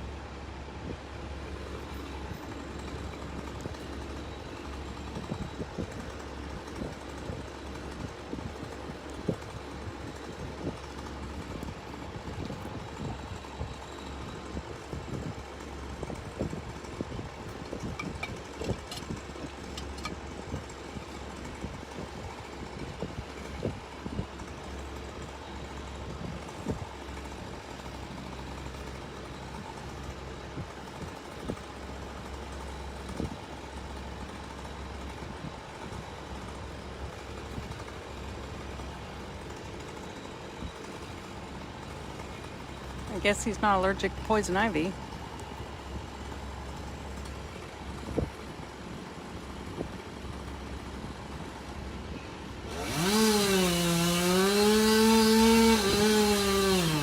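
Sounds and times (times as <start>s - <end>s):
engine running at low speed: 0.0s - 57.0s.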